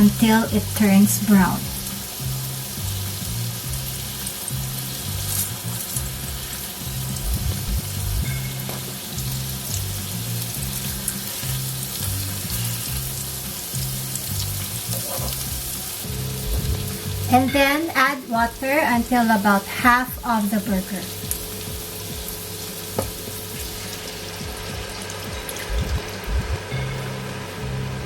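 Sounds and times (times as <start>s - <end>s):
background music with bass line: 0.0s - 28.0s
burger patties sizzling in pan: 0.0s - 28.0s.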